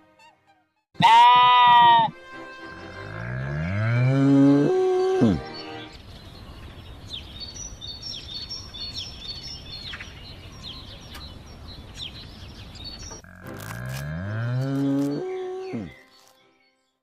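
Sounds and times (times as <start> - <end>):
cow mooing: 3.1 - 5.4, 13.2 - 15.9
small birds chirping: 4.6 - 17.0.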